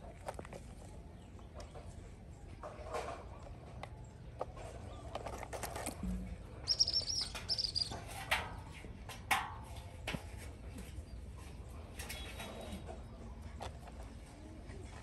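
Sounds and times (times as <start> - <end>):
small bird chirping: 6.6 - 8.1.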